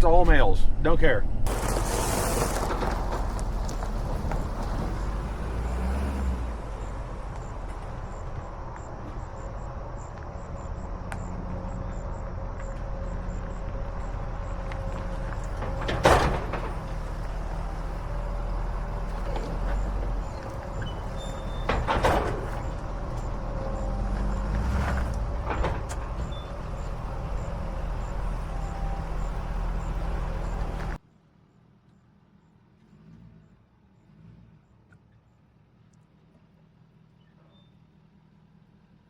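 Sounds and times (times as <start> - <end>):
truck rumbling from inside cab: 0.0 - 31.0, 32.3 - 39.0
sharp knocks and rattles: 1.5 - 5.4, 6.6 - 31.0.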